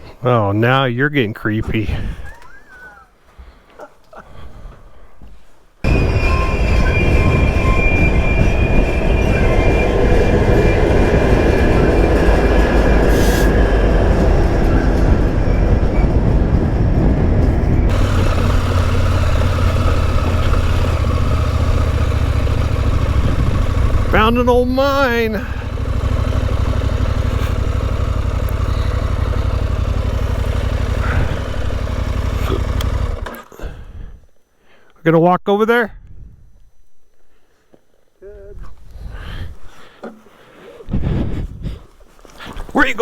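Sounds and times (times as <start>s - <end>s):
motorcycle engine running: 5.8s - 33.5s
wind and road noise: 5.8s - 34.2s.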